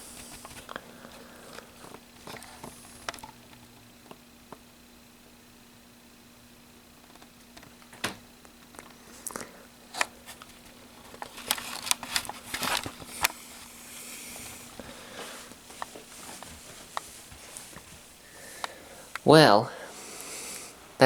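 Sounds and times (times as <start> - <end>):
rustling: 10.2 - 19.1.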